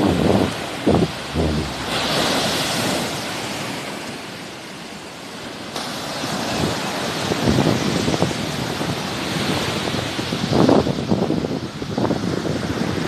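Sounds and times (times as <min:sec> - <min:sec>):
wind buffeting microphone: 0:00.0 - 0:02.8
sea waves washing ashore: 0:00.0 - 0:10.4.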